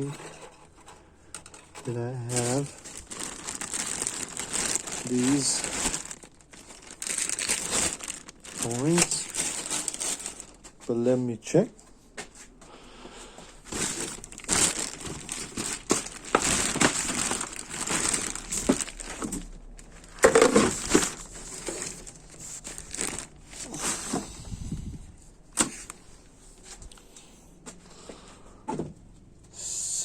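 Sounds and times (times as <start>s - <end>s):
plastic bags crinkling: 1.3s - 10.8s, 13.6s - 24.2s.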